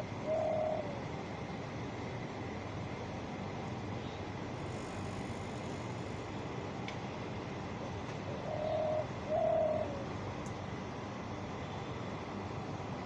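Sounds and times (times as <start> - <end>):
steady background hiss: 0.0 - 13.0
bird calling: 0.2 - 1.0, 8.4 - 10.1.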